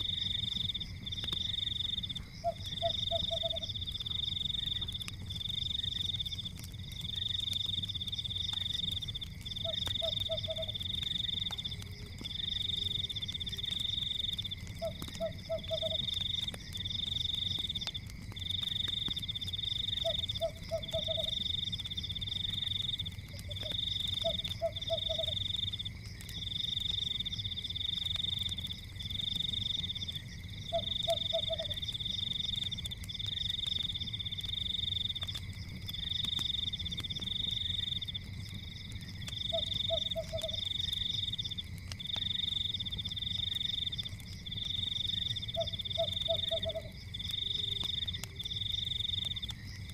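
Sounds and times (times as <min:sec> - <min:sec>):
frogs trilling: 0:00.0 - 0:49.9
wood fire crackling: 0:00.0 - 0:49.9
frog croak: 0:01.4 - 0:03.8, 0:09.6 - 0:11.8, 0:14.7 - 0:16.4, 0:19.9 - 0:21.5, 0:23.4 - 0:25.6, 0:30.6 - 0:31.9, 0:39.3 - 0:41.4, 0:45.1 - 0:49.5.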